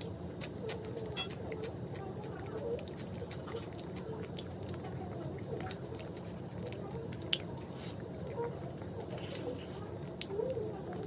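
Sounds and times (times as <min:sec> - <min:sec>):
person chewing crunchy food: 0:00.0 - 0:10.3.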